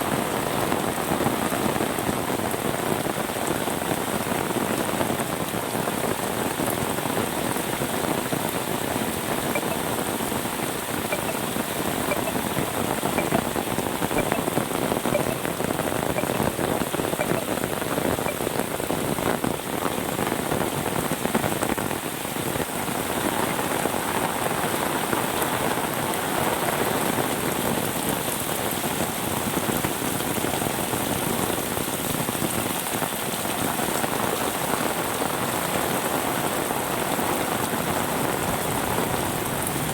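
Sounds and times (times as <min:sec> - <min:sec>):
rain pattering on surfaces: 0:00.0 - 0:39.9
faint high ticks: 0:09.6 - 0:09.8, 0:11.1 - 0:11.4, 0:12.1 - 0:12.4, 0:13.2 - 0:13.5, 0:14.2 - 0:14.5, 0:15.2 - 0:15.4, 0:16.2 - 0:16.4, 0:17.2 - 0:17.5.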